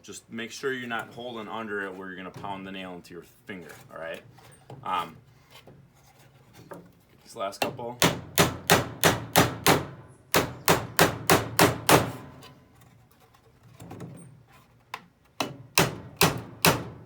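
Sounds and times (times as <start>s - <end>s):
hammer driving nails into wood: 8.0s - 12.5s, 15.4s - 17.0s.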